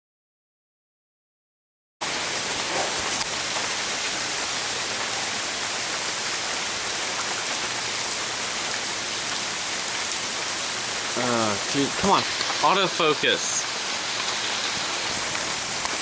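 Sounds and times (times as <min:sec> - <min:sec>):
heavy rain pouring: 0:02.0 - 0:16.0.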